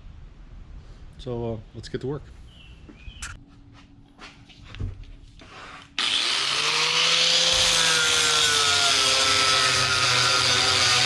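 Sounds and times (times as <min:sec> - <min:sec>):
power tool grinding rusted steel: 0:06.0 - 0:11.0.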